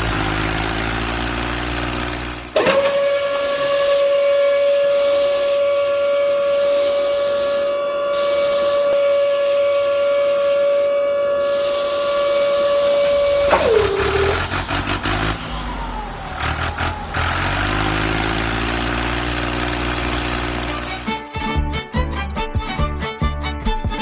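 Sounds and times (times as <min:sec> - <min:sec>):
bursts of hiss: 0:03.3 - 0:09.0, 0:11.4 - 0:15.4
whistle-like tone falling in pitch: 0:08.9 - 0:18.1.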